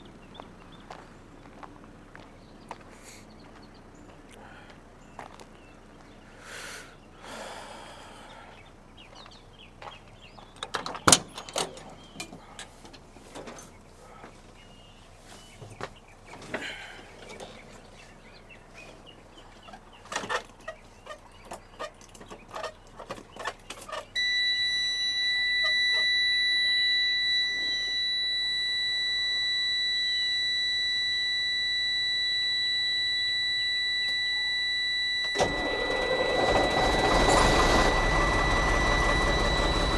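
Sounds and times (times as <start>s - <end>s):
truck warning buzzer: 24.2s - 39.9s.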